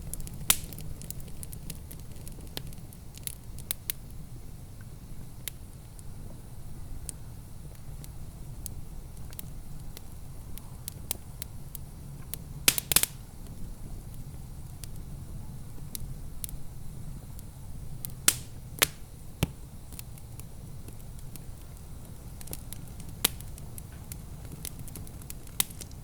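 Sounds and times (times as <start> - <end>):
loud pops of fire: 0.0 - 26.0
low steady fire rumble: 0.0 - 26.0
wood fire crackling: 0.0 - 26.0.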